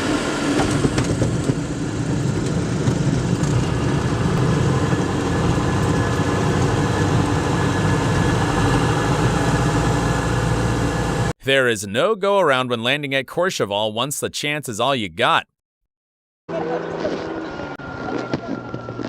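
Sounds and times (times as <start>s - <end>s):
aircraft engine noise: 0.0s - 11.4s, 16.5s - 19.0s.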